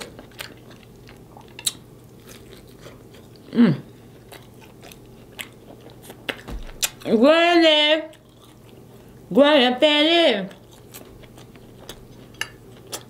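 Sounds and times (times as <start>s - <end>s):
person chewing: 0.0s - 7.1s, 8.1s - 9.2s, 10.5s - 13.0s
person humming: 3.5s - 3.9s.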